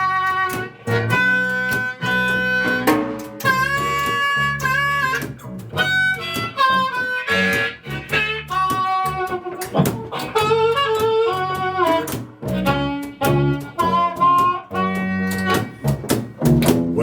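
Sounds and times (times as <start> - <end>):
blues harmonica: 0.0 - 16.7
rhythmic guitar: 0.0 - 17.0.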